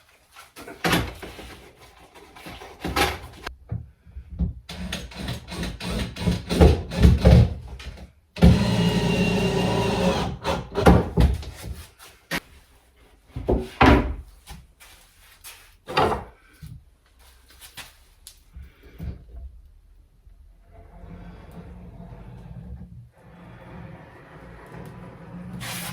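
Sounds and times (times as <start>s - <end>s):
power tool motor running: 8.4s - 10.7s.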